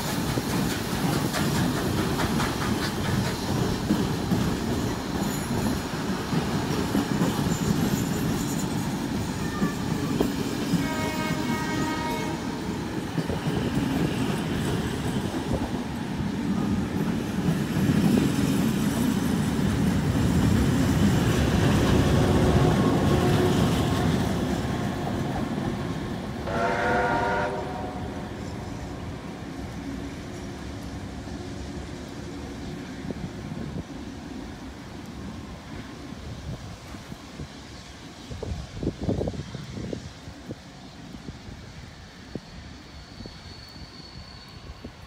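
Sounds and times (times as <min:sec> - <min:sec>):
wheels clicking over rail joints: 0:00.0 - 0:10.8
train rumbling past: 0:00.0 - 0:45.0
multi-note train horn: 0:10.7 - 0:12.6, 0:26.4 - 0:28.5.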